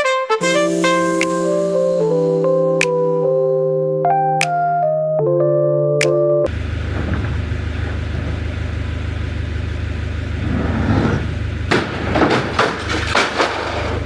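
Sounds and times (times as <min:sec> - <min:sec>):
diesel engine droning: 0:06.5 - 0:14.0.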